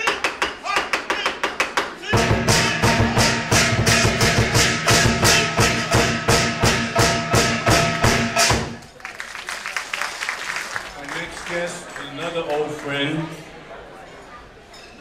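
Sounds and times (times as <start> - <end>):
sharp percussion strikes: 2.1 - 8.9.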